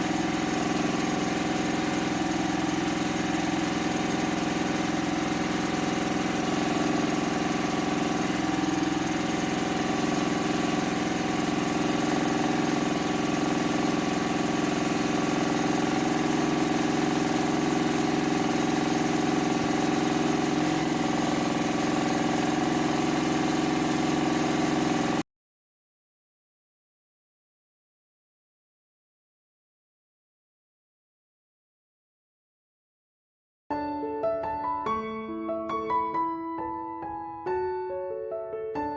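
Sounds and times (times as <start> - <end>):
small motor humming: 0.0 - 25.2.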